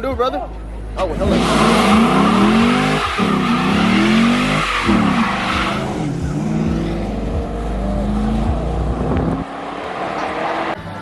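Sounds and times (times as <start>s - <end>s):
car engine revving: 1.0s - 11.0s
tyres squealing: 1.2s - 6.6s.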